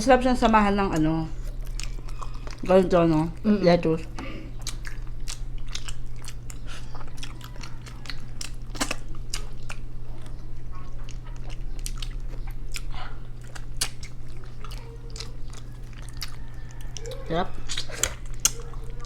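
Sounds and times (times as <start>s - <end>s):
steady low hum: 0.0s - 19.0s
wet chewing smacks: 0.9s - 3.5s, 4.1s - 19.0s.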